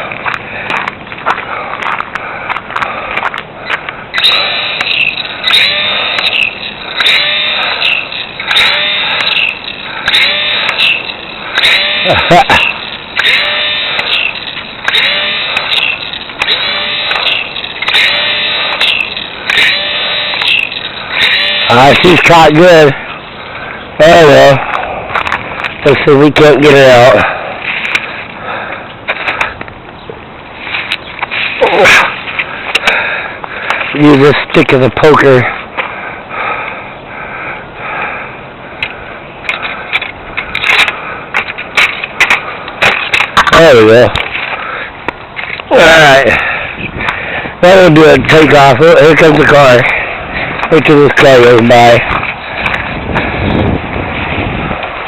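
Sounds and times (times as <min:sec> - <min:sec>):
small electric motor and propeller revving: 0:04.1 - 0:23.6
stick scraping through branches: 0:30.5 - 0:32.8.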